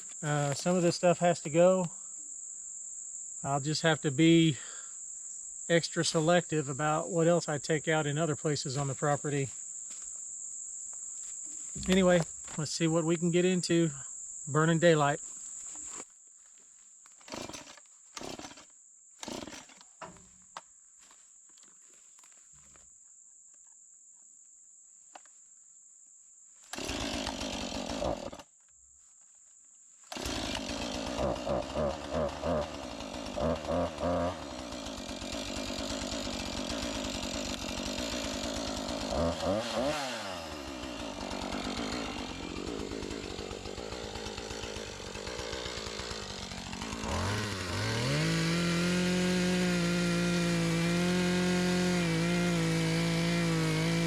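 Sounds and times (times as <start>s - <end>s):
chainsaw engine revving: 17.3s - 18.6s, 19.2s - 19.8s, 26.7s - 28.4s, 30.1s - 54.0s.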